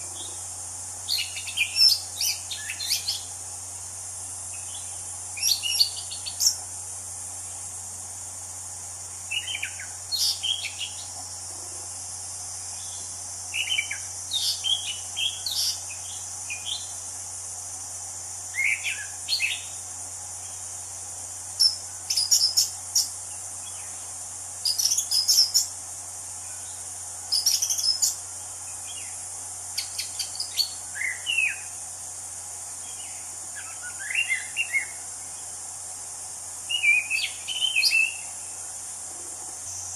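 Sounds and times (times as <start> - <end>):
steady high hiss: 0.0 - 39.9
thrush singing whistled notes: 1.1 - 3.3, 4.5 - 6.6, 32.9 - 35.0, 36.7 - 38.4.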